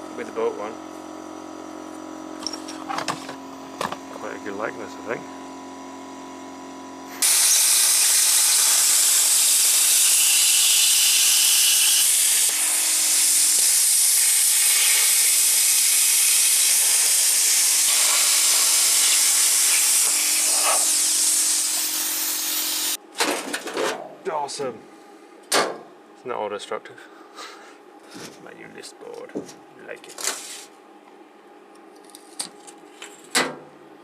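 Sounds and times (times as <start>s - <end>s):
plasma cutter hissing: 7.1s - 23.0s.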